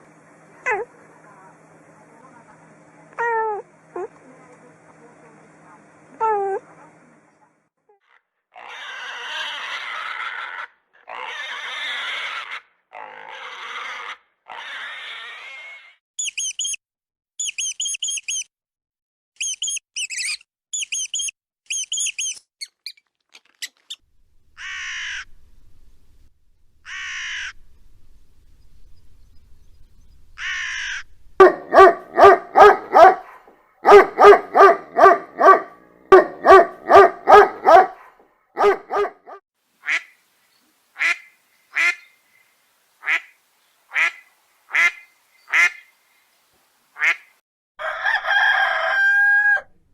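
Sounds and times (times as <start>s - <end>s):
harsh animal cries: 8.0s - 16.0s, 24.6s - 25.3s, 26.8s - 27.6s, 30.4s - 31.1s
rapid high squeaks: 19.4s - 24.0s
animal calls falling in pitch: 23.4s - 25.5s, 26.8s - 27.6s.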